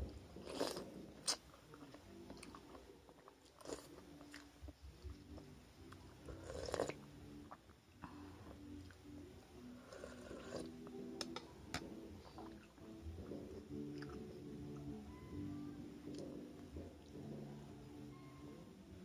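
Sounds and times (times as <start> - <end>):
person chewing food: 0.4 - 7.8, 9.8 - 14.8.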